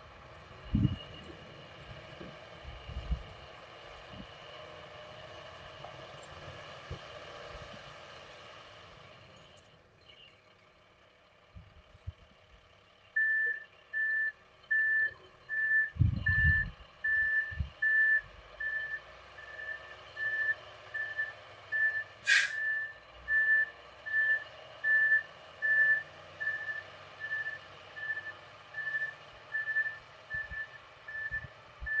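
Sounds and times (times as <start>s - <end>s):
reversing alarm beeping: 13.2s - 32.0s
brief sharp sound: 22.3s - 22.6s.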